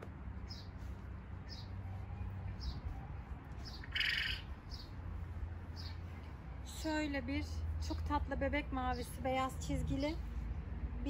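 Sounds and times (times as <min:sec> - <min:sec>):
louder fuller bird call: 0:03.6 - 0:04.9
small bird chirping: 0:03.6 - 0:05.0.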